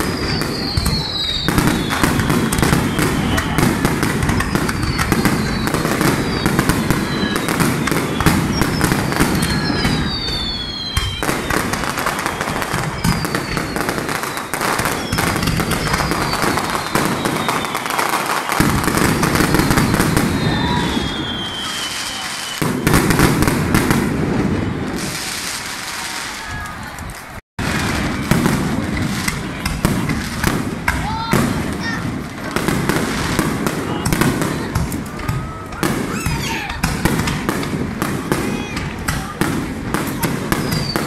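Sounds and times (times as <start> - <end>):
firework shells bursting: 0.0 - 24.2
descending firework whistles: 0.0 - 26.8, 32.8 - 37.4, 40.1 - 41.0
fireworks crackling: 0.0 - 41.0.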